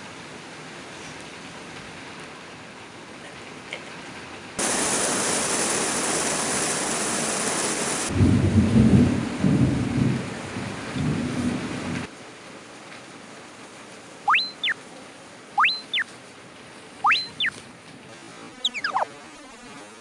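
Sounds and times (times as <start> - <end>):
rain falling: 0.0 - 18.1
thunder rumbling: 8.1 - 12.1.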